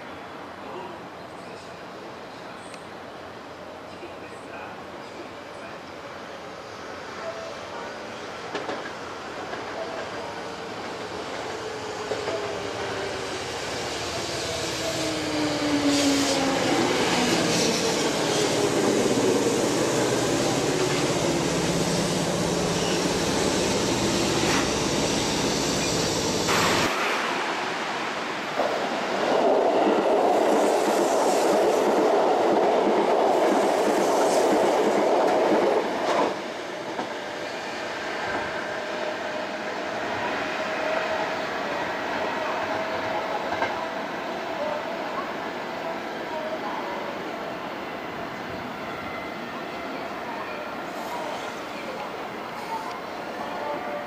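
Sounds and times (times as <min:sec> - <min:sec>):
train cars rumbling: 0:07.7 - 0:38.6.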